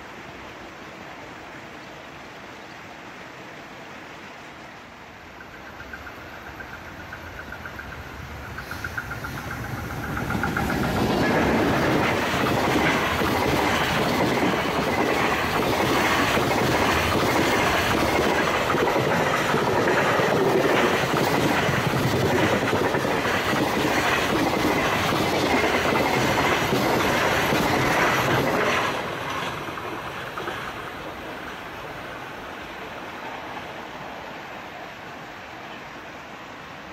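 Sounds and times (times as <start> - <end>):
freight train wheels clacking: 5.4 - 31.8.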